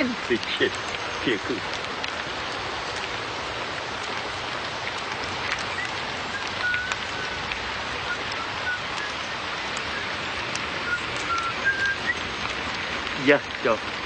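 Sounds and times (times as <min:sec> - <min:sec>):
rain hiss: 0:00.0 - 0:14.0.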